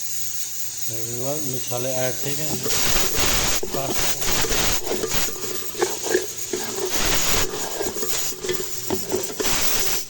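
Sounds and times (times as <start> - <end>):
spices frying: 0.0 - 10.0
spoon stirring and scraping pot: 2.2 - 10.0
spoon clinking against pot: 2.5 - 10.0.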